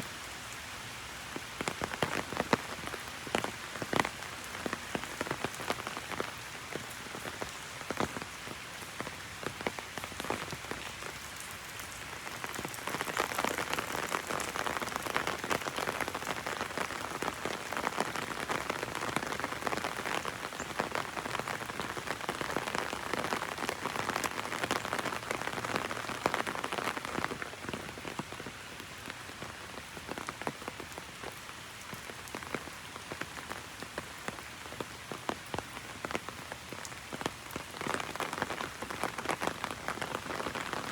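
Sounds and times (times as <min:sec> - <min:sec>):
rain pattering on an umbrella: 0:00.0 - 0:40.9.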